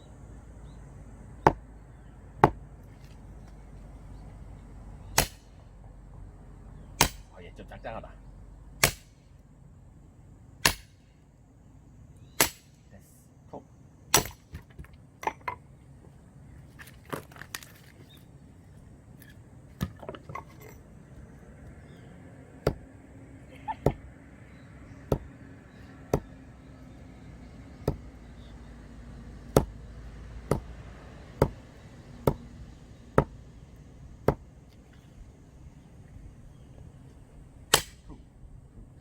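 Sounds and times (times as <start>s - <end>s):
axe splitting firewood: 2.4s - 2.7s, 5.2s - 5.6s, 7.0s - 7.4s, 8.8s - 9.2s, 10.6s - 11.0s, 12.4s - 12.7s, 14.1s - 15.6s, 19.2s - 20.8s, 22.6s - 22.9s, 25.0s - 25.3s, 26.1s - 26.4s, 27.8s - 28.5s, 29.5s - 29.8s, 30.4s - 30.7s, 31.4s - 31.6s, 32.2s - 32.5s, 33.1s - 33.4s, 37.7s - 38.2s.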